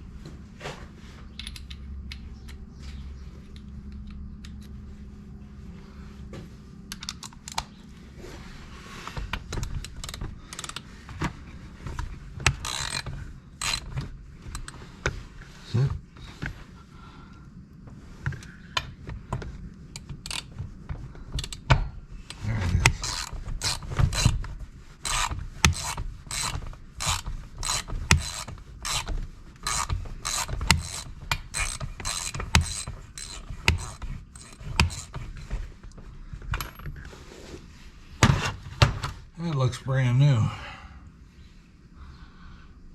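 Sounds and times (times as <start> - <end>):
ratchet driver rasping clicks: 9.5 - 10.8, 12.4 - 14.8, 19.9 - 20.5, 21.4 - 21.7, 22.3 - 24.4, 25.0 - 35.5.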